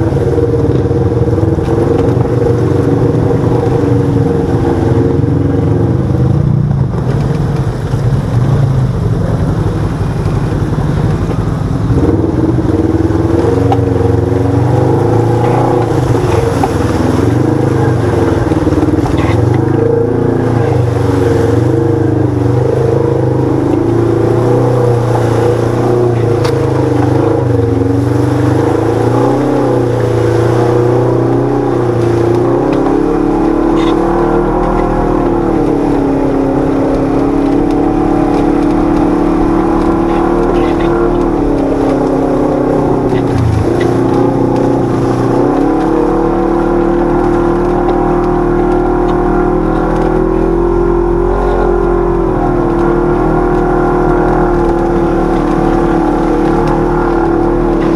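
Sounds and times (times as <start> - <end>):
utility vehicle engine revving: 0.0 - 57.9.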